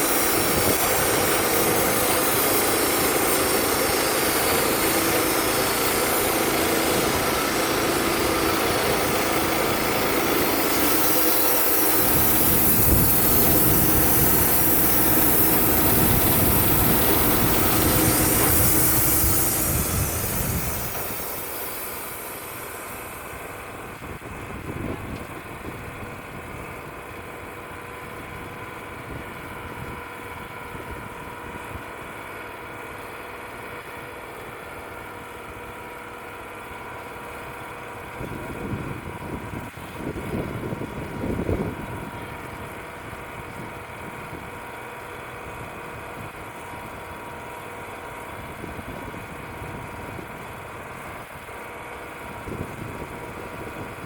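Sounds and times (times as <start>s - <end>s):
wind buffeting microphone: 0.0s - 22.2s, 23.8s - 27.1s, 38.0s - 44.7s, 52.2s - 54.0s
sawmill engine running: 0.0s - 54.0s.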